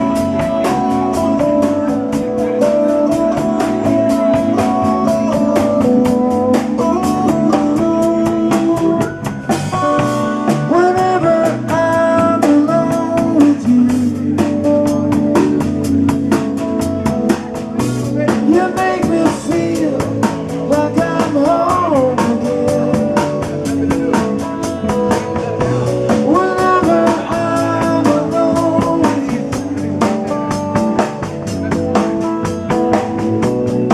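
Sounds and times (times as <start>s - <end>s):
person singing melody: 0.0s - 16.6s, 18.0s - 33.9s
live band playing: 0.0s - 33.9s.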